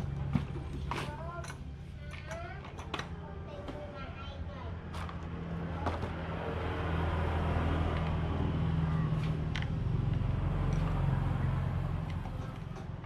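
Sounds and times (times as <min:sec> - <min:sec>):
small petrol engine running: 0:05.0 - 0:13.0.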